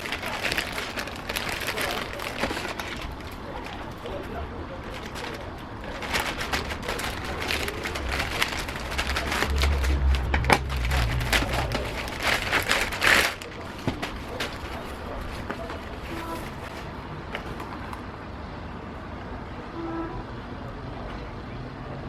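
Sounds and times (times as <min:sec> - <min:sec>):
packaging crinkling and tearing: 0:00.0 - 0:16.8.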